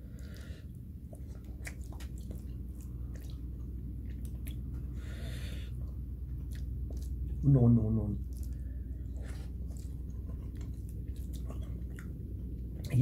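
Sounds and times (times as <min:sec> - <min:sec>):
steady low hum: 0:00.0 - 0:13.0
person chewing with wet mouth clicks: 0:00.1 - 0:04.9, 0:05.8 - 0:07.4, 0:08.2 - 0:13.0
breathy hiss: 0:05.0 - 0:05.8.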